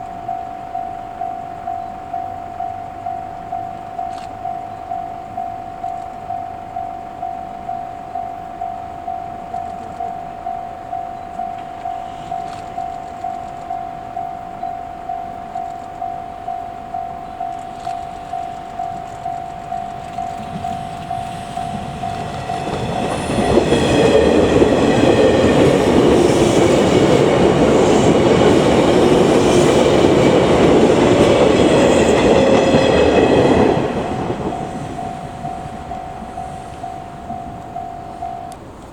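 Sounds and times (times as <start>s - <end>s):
level-crossing bell ringing: 0.0s - 38.8s
train wheels clattering over rail joints: 17.6s - 38.9s.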